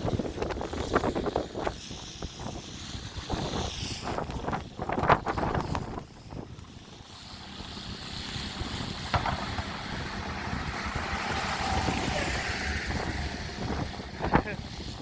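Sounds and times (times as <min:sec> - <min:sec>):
vehicle engine approaching: 0:07.0 - 0:15.0.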